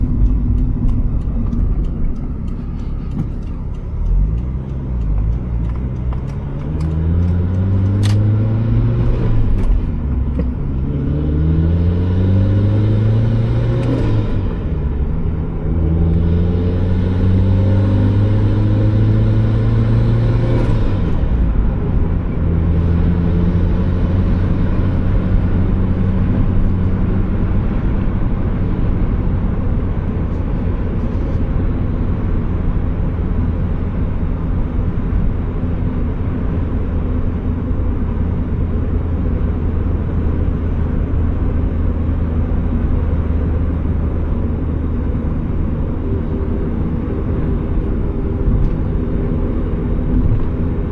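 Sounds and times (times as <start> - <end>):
car engine accelerating: 0.0 - 50.9
road noise: 0.0 - 50.9.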